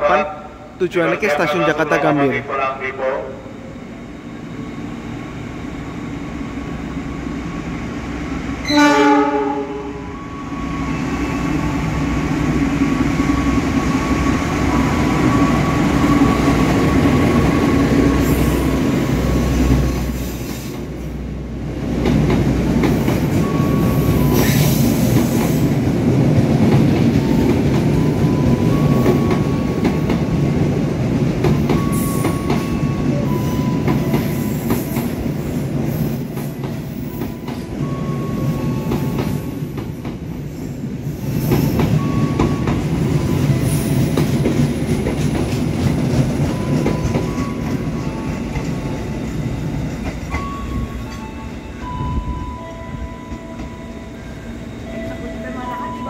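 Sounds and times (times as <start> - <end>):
train coaches rumbling past: 0.0 - 56.0
locomotive horn blast: 8.6 - 10.2.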